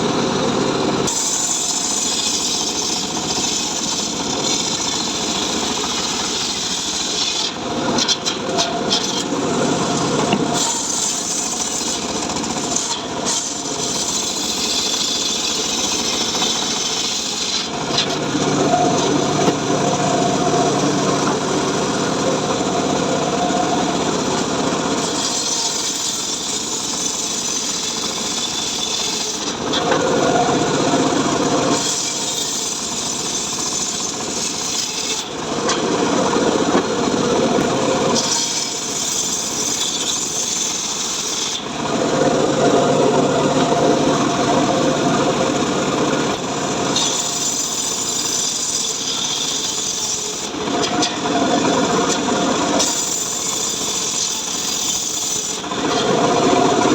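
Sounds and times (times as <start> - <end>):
engine-driven saw cutting wood: 0.0 - 56.9.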